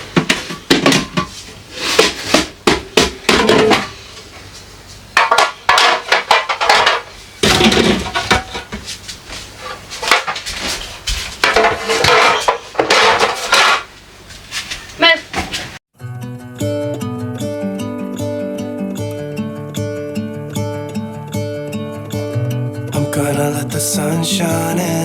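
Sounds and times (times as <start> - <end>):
kitchen items knocking and clattering: 0.0 - 4.0, 5.2 - 9.0, 9.7 - 15.8.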